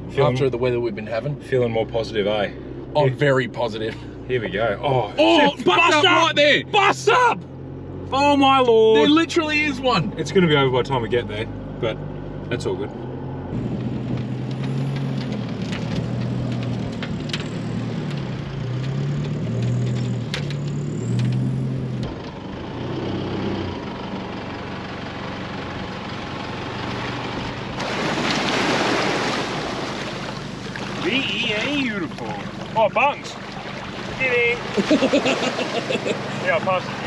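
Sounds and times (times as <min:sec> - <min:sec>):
vehicle engine on sand: 0:00.0 - 0:37.0
shallow water rushing: 0:26.8 - 0:37.0.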